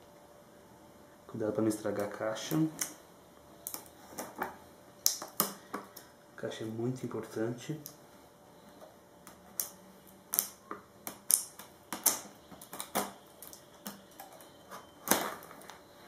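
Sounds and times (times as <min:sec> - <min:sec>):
plastic seal clicking and crackling: 0:09.3 - 0:15.8.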